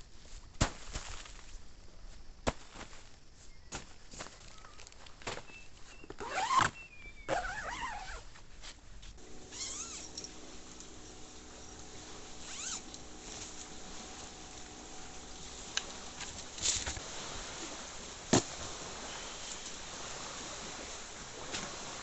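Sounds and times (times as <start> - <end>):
steady low hum: 9.2 - 22.0.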